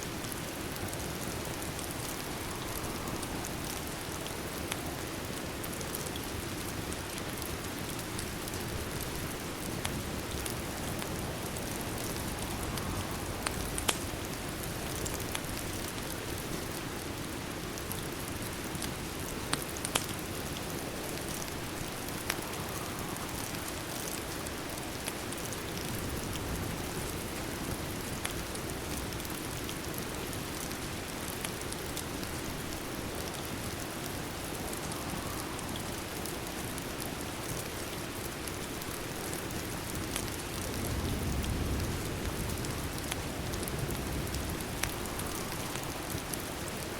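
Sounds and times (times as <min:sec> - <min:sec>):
rain pattering: 0:00.0 - 0:46.9.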